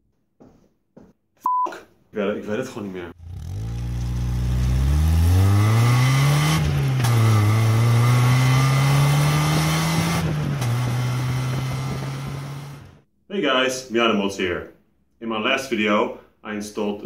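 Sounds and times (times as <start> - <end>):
car engine accelerating hard: 3.2 - 13.0.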